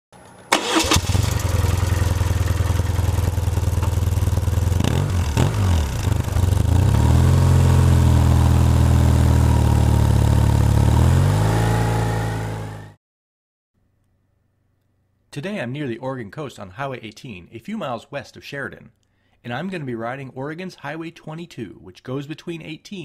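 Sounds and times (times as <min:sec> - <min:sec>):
motorcycle engine revving: 0:00.5 - 0:13.0.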